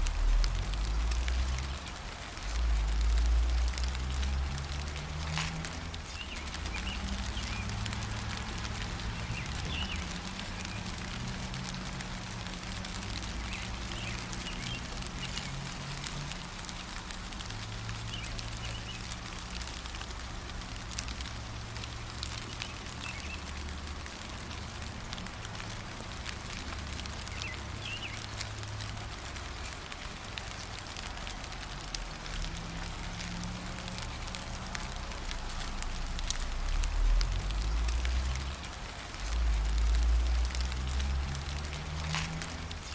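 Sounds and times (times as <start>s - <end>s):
light rain pattering: 0.0s - 42.9s
bird chirps: 9.2s - 10.8s, 27.3s - 28.3s.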